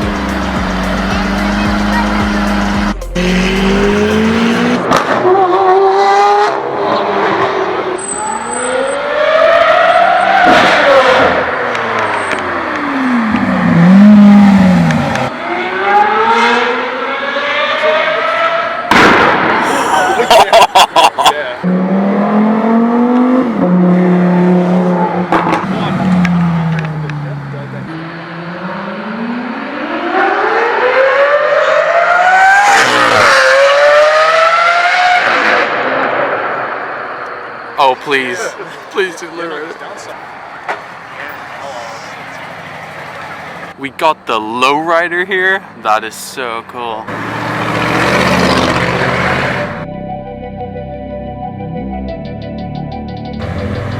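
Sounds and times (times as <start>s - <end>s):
sports car engine revving: 0.0s - 7.9s, 8.9s - 19.2s, 21.6s - 37.2s, 47.1s - 49.8s.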